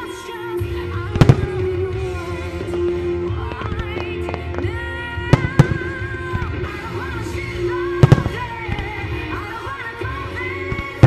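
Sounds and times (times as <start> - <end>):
music with long held notes: 0.0 - 11.0
firework shells bursting: 8.0 - 9.5.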